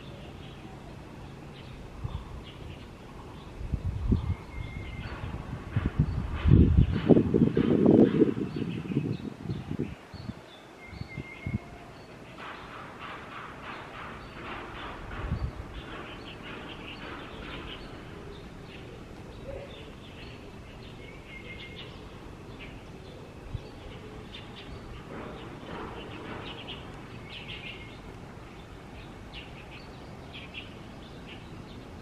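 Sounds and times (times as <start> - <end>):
outdoor background noise: 0.0 - 32.0
small birds chirping: 0.0 - 32.0.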